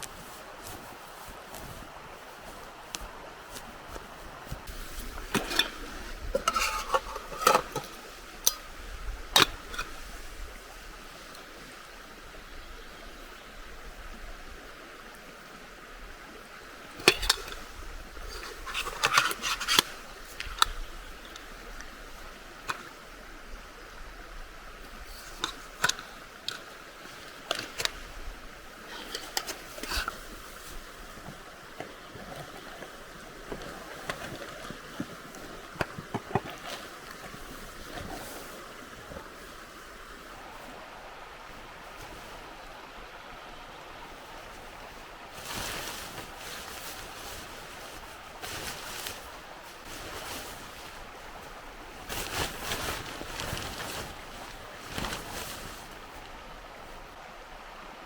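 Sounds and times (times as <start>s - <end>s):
metal cookware clinking: 6.4s - 8.6s, 17.0s - 17.7s.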